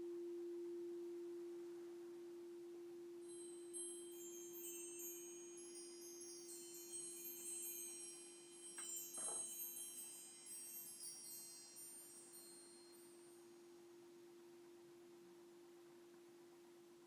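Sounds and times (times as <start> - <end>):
crystal singing bowl tone: 0.0 - 15.9
high chime tones tinkling: 3.3 - 13.5
soft rustle: 8.7 - 13.3.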